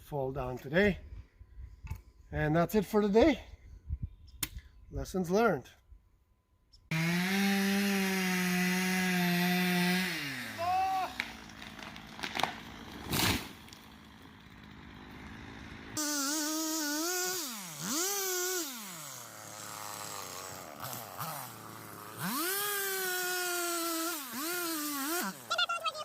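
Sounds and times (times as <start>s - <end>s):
chainsaw engine revving: 6.9s - 26.0s.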